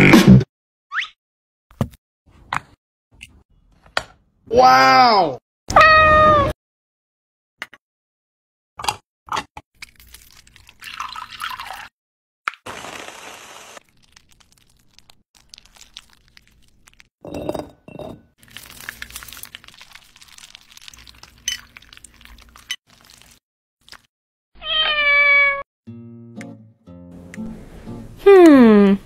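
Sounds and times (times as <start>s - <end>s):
cat meowing: 5.7s - 6.6s, 24.6s - 25.6s
kitchen clinks and taps: 17.3s - 18.3s.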